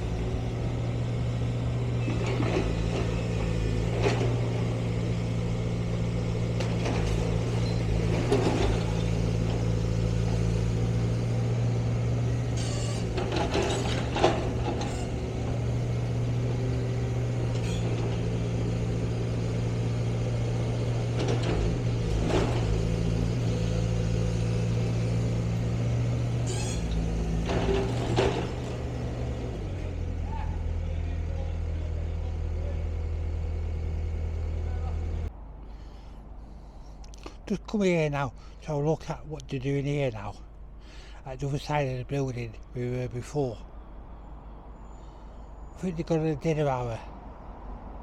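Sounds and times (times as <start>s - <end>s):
engine running steadily: 0.0s - 37.4s.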